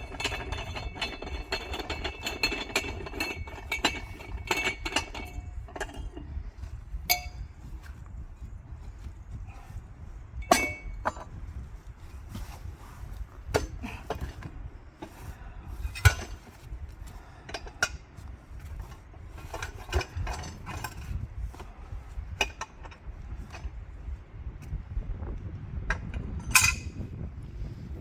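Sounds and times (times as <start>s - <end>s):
metal clinks and knocks: 0.0s - 8.0s, 10.4s - 11.4s, 15.9s - 16.7s, 18.6s - 21.7s, 25.9s - 27.0s
steady low rumble: 0.0s - 28.0s.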